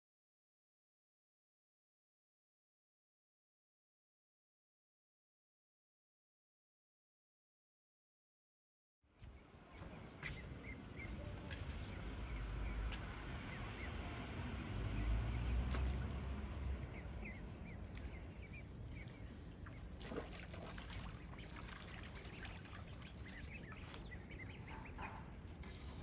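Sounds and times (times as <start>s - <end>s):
ducklings peeping: 10.2s - 26.0s
trickling stream: 14.7s - 25.2s.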